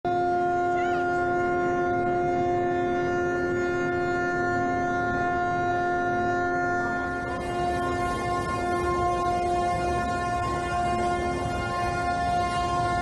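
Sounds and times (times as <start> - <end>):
ship's horn blast: 0.1 - 13.0.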